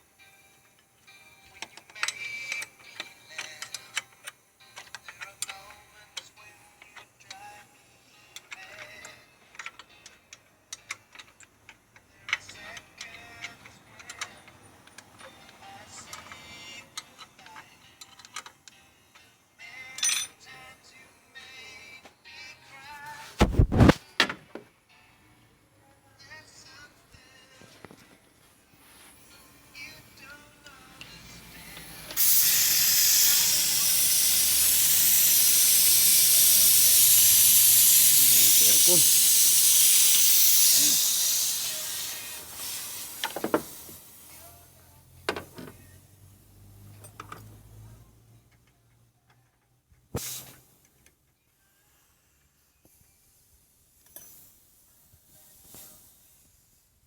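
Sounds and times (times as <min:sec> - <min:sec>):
metal tools clinking: 0:19.8 - 0:20.4
high-pressure spray hissing: 0:31.5 - 0:44.5, 0:50.2 - 0:50.6.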